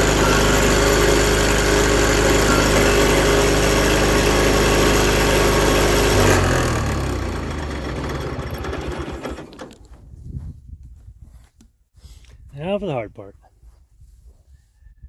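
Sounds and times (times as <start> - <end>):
garden tractor engine running: 0.0 - 10.0.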